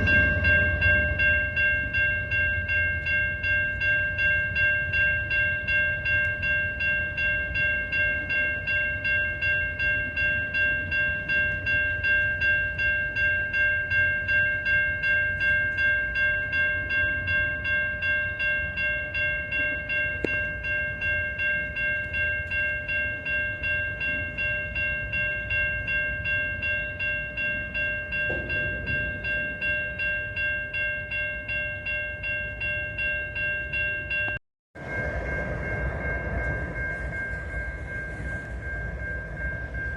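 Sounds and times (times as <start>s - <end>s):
crossing warning bell ringing: 0.0s - 39.9s
train rumbling on tracks: 0.0s - 39.9s.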